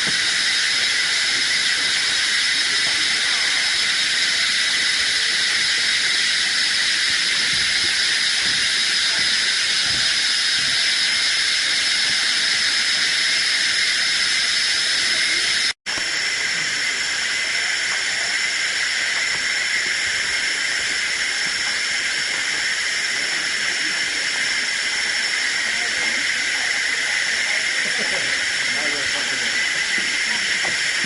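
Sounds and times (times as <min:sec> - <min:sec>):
shrill insect chorus: 0:00.0 - 0:31.0.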